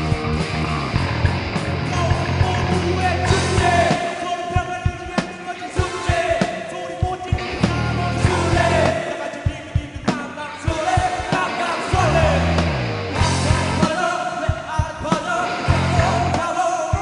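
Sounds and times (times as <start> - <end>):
live band music: 0.0 - 17.0
person singing: 1.9 - 17.0.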